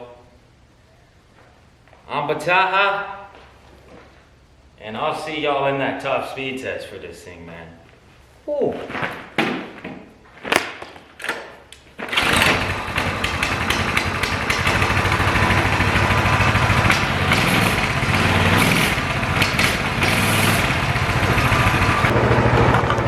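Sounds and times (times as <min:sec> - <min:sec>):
minibike engine running: 0:12.1 - 0:23.0.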